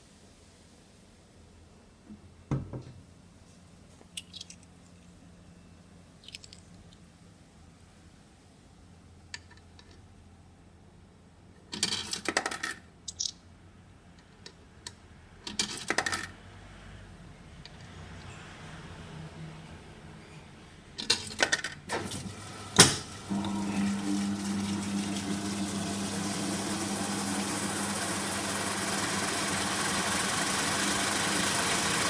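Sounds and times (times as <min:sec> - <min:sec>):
thump: 0:02.5 - 0:02.9
coins rattling into coin slot: 0:11.7 - 0:13.3, 0:15.5 - 0:16.3, 0:21.0 - 0:21.8.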